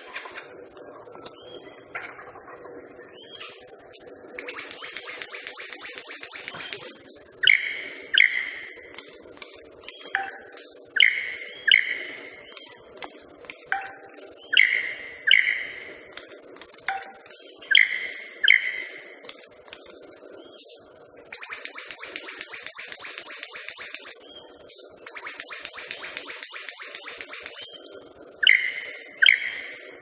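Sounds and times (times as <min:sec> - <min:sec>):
steady low hum: 0:00.0 - 0:22.5
crackle of short ticks: 0:03.9 - 0:10.7, 0:15.7 - 0:20.1, 0:21.3 - 0:24.2, 0:25.1 - 0:29.9
bird wing-feather ringing notes: 0:04.5 - 0:09.0, 0:10.2 - 0:12.7, 0:13.7 - 0:16.2, 0:16.9 - 0:19.0.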